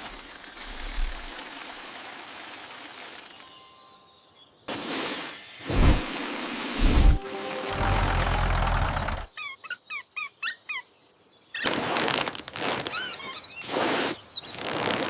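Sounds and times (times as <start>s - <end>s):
rushing noise: 5.7s - 9.3s.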